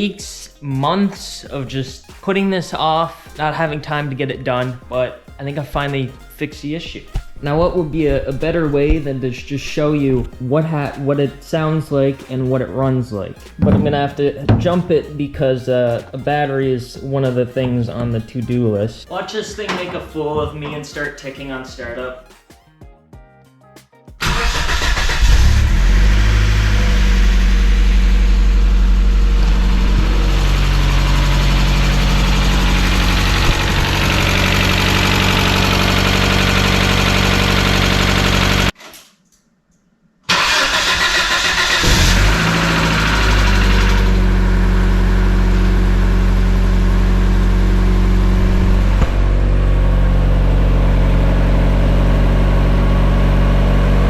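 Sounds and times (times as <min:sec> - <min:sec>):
car engine cranking and starting: 0:13.6 - 0:14.8, 0:24.2 - 0:38.8, 0:40.3 - 0:54.0
car engine idling: 0:13.6 - 0:14.8, 0:24.2 - 0:38.7, 0:41.5 - 0:54.0
engine ticking: 0:24.2 - 0:38.7, 0:40.3 - 0:51.8.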